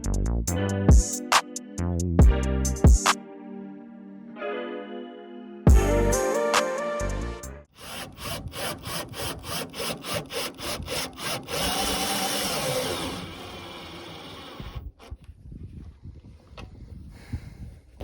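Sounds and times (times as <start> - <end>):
background music: 0.0 - 7.7
power tool running: 7.8 - 15.1.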